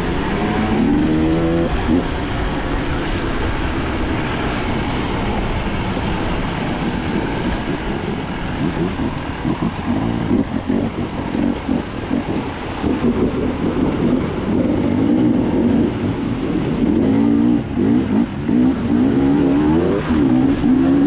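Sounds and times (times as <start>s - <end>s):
dirt bike engine revving: 0.1s - 2.1s, 16.7s - 21.0s.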